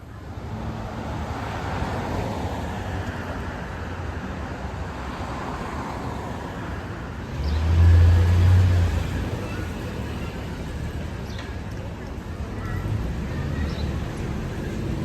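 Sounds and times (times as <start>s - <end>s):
road noise from passing vehicles: 0.0s - 15.0s.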